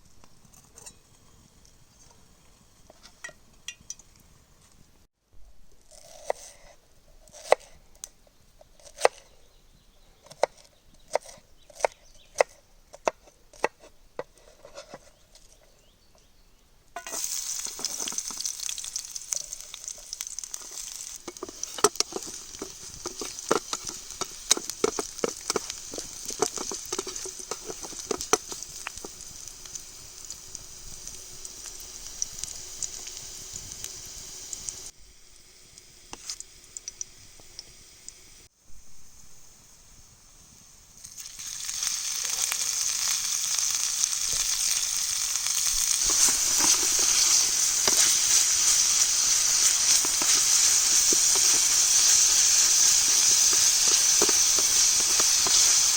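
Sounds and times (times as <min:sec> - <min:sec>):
food sizzling in hot fat: 0:00.0 - 0:04.8, 0:17.0 - 0:55.9.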